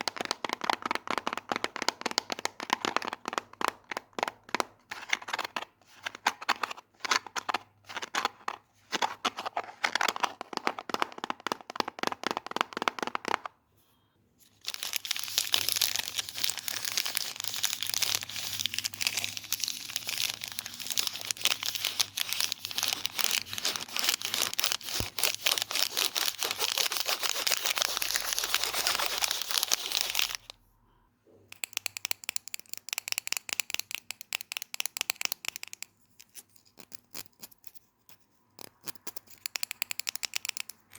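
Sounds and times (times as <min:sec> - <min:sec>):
crackly scratching and crinkling: 0:14.4 - 0:30.5, 0:34.7 - 0:40.9.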